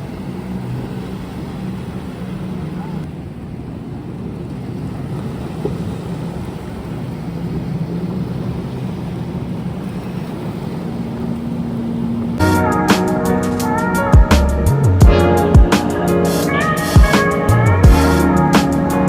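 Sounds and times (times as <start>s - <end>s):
engine running: 0.0s - 19.0s
music: 12.4s - 19.0s.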